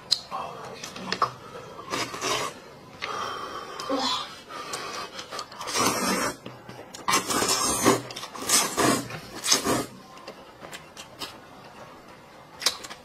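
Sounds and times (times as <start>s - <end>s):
person slurping noodles: 1.8s - 2.6s, 4.8s - 6.4s, 7.1s - 10.0s.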